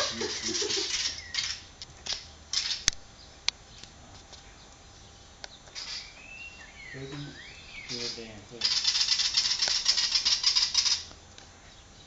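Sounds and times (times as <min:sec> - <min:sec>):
bird harsh scolding chatter: 0:00.0 - 0:02.9, 0:05.7 - 0:11.1.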